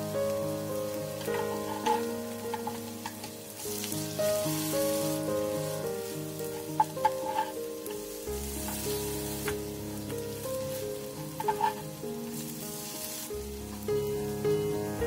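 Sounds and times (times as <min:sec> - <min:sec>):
background music: 0:00.0 - 0:15.0
fritters sizzling in oil: 0:00.0 - 0:15.0
utensils clicking against pan: 0:01.2 - 0:04.1, 0:06.5 - 0:12.5.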